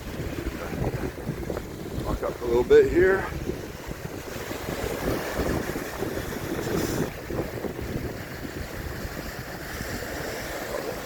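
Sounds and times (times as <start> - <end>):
ocean waves washing ashore: 0.0 - 11.0
wind buffeting microphone: 0.0 - 11.0.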